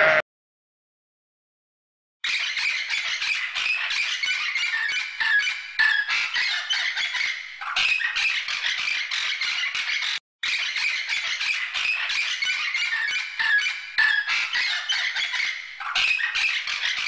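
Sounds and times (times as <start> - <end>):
cockatoo screeching: 0.0 - 0.2.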